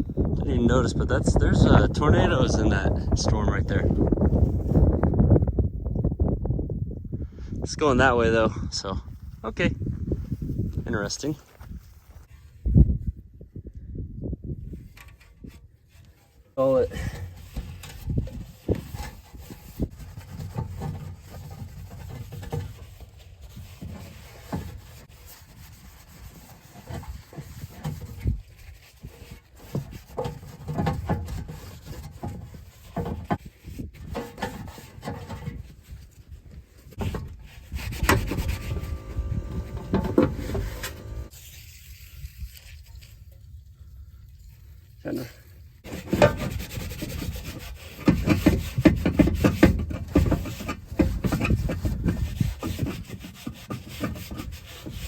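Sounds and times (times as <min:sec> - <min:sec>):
hand scrubbing metal pan: 0:16.1 - 0:36.1, 0:36.9 - 0:43.4, 0:45.8 - 0:55.0.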